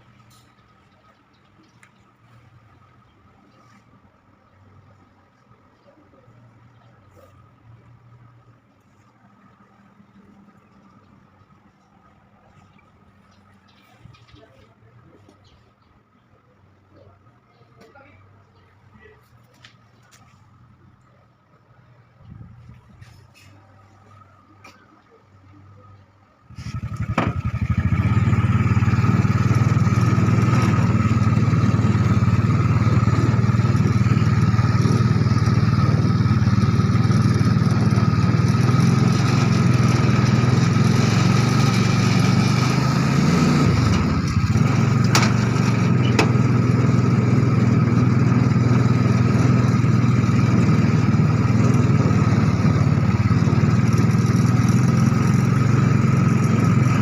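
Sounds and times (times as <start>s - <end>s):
small motorcycle engine running: 26.5s - 57.0s.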